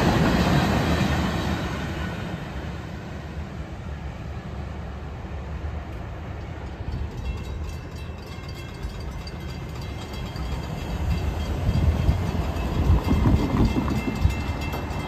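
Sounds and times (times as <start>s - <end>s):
freight train rumble: 0.0s - 15.0s
railroad crossing bell ringing: 5.9s - 15.0s.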